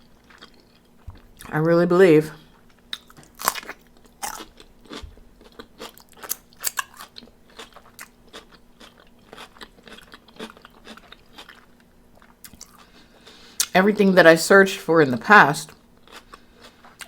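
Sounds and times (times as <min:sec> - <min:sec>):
wet chewing: 0:00.2 - 0:01.5, 0:02.7 - 0:12.9
crunching of crispy chicken: 0:02.9 - 0:13.3, 0:16.0 - 0:17.0.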